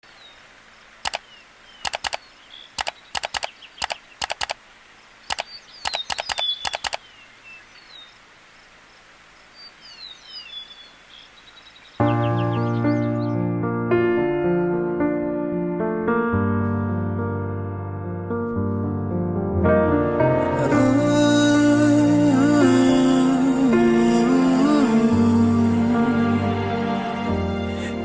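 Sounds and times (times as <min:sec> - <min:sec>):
birds chirping: 0:00.0 - 0:13.6
faint outdoor hiss: 0:00.0 - 0:16.1, 0:19.6 - 0:28.0
sharp clicks: 0:01.0 - 0:04.6, 0:05.3 - 0:07.1
piano: 0:12.0 - 0:28.0.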